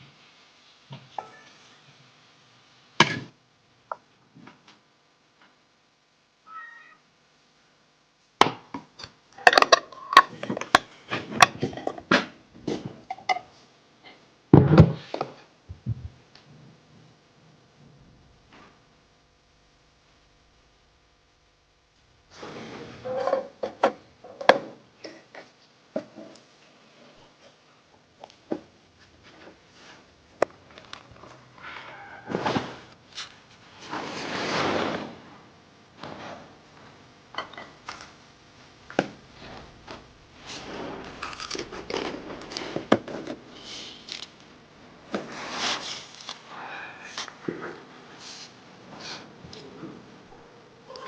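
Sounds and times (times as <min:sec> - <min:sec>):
hard objects knocking and clattering: 0:08.8 - 0:13.5, 0:38.8 - 0:44.4
noisy handling rustle: 0:37.9 - 0:46.5
heavy thud: 0:38.8 - 0:43.6.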